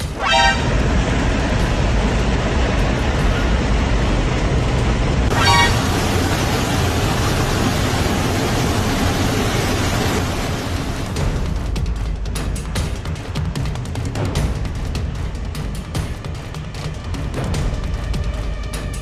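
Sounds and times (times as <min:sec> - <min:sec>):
wind roaring into cabin: 0:00.0 - 0:11.8.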